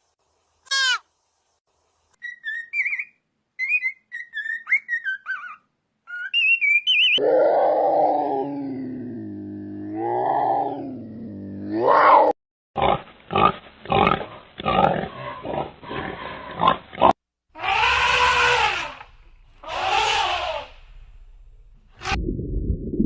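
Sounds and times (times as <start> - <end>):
farm animal pitched calls: 12.8 - 21.1.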